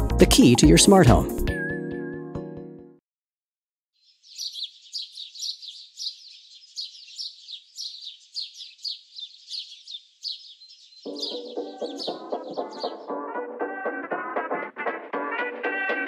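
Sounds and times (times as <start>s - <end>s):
music: 0.0s - 3.0s, 11.1s - 16.0s
songbirds chirping: 4.0s - 14.0s.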